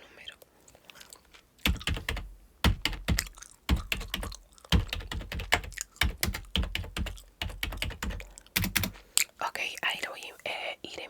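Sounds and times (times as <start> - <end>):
keyboard keystrokes clicking: 1.6 - 9.0.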